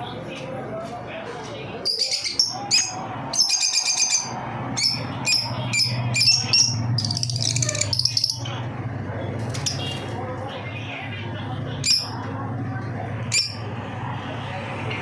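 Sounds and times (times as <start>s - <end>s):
birds chirping: 1.7s - 12.3s.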